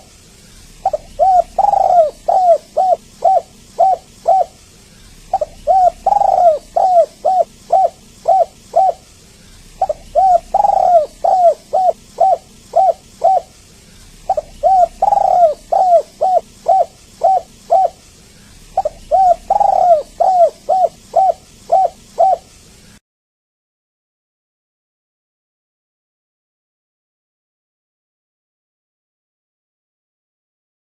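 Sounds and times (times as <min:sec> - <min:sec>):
dove cooing: 0:00.7 - 0:22.6.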